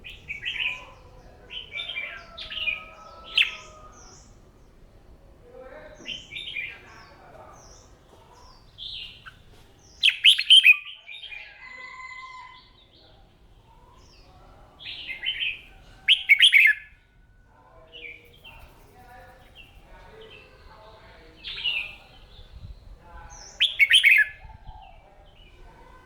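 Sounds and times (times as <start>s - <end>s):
bird chirping song: 0.0s - 4.8s, 6.0s - 11.6s, 12.5s - 17.0s, 17.9s - 26.0s.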